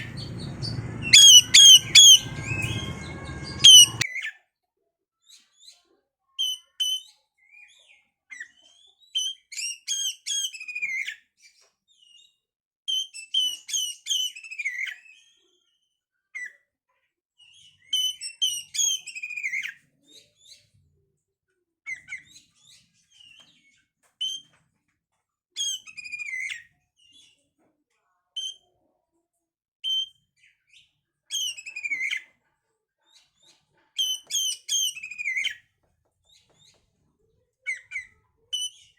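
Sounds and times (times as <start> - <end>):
bird singing whistles and chirps: 0.0 - 4.0.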